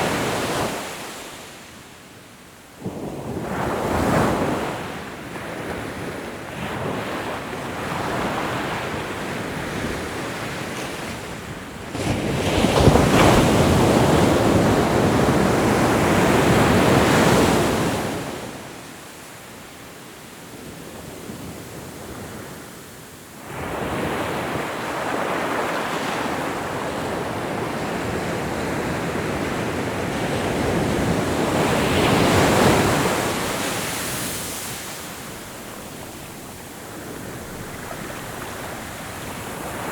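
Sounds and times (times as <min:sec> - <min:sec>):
ocean waves breaking: 0:23.4 - 0:39.9.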